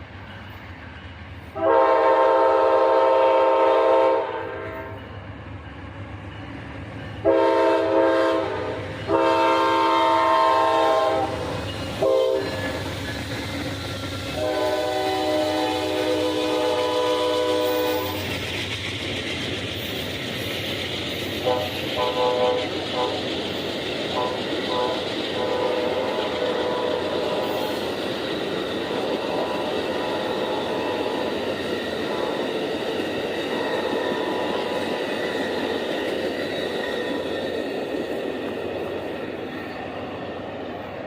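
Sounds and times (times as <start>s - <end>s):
train rumbling past: 0.0s - 41.0s
train air horn blasts: 1.5s - 5.0s, 7.2s - 12.8s, 14.3s - 18.2s, 21.4s - 23.2s, 24.1s - 27.6s.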